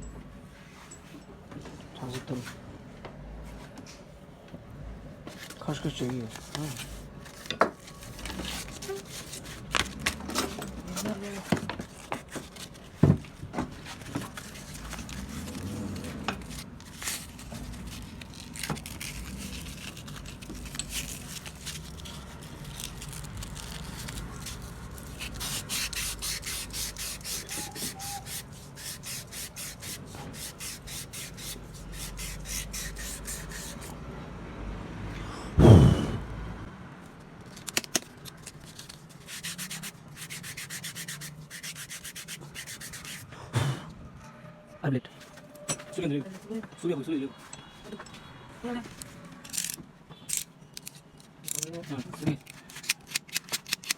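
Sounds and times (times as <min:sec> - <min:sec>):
hand sanding strokes: 0:14.2 - 0:33.9, 0:39.1 - 0:43.3.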